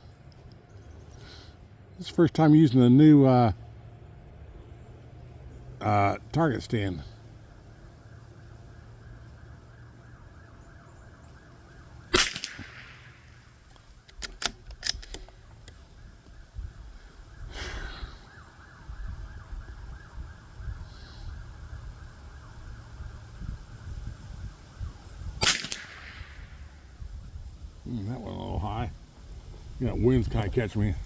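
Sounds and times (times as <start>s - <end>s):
rifle shot: 12.1s - 13.6s, 25.4s - 26.8s
sharp clicks: 12.2s - 15.8s
wind rumbling on microphone: 14.0s - 31.0s.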